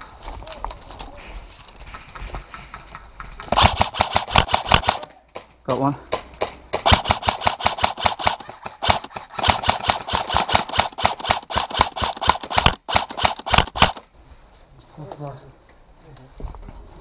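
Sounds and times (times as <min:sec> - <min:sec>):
airsoft rifle rapid fire: 0:03.4 - 0:05.1, 0:06.7 - 0:14.0.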